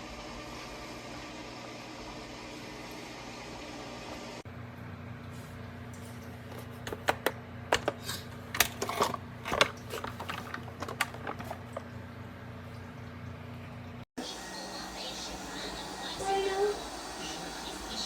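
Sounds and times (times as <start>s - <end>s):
robot vacuum humming: 14.2s - 18.0s.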